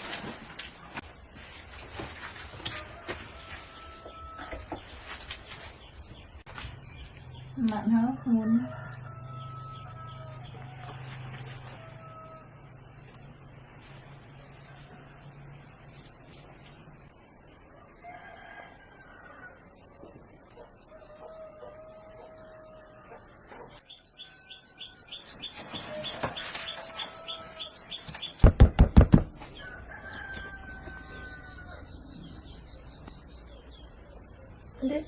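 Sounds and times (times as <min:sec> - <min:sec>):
roosters crowing: 0:02.4 - 0:05.2, 0:07.8 - 0:12.9, 0:17.7 - 0:20.0, 0:20.8 - 0:28.6, 0:29.4 - 0:32.6
loud knocks: 0:28.4 - 0:29.4.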